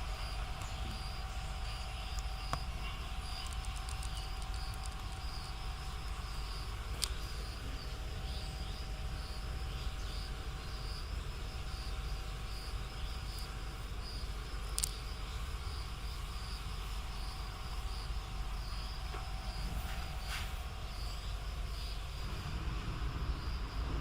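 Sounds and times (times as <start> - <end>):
insects buzzing: 0.0 - 24.0
low background rumble: 0.0 - 24.0
sharp clicks: 2.1 - 6.2.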